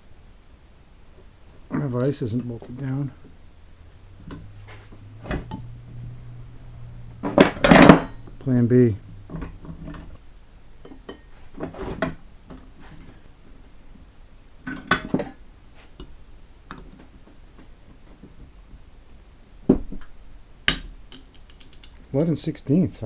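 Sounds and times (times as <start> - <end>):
sharp metal knocks: 4.0 - 8.5.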